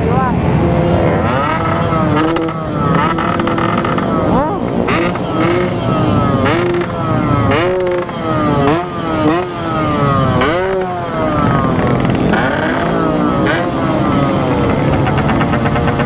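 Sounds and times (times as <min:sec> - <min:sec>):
motorcycle engine revving: 0:00.0 - 0:16.0
person talking: 0:04.3 - 0:04.8.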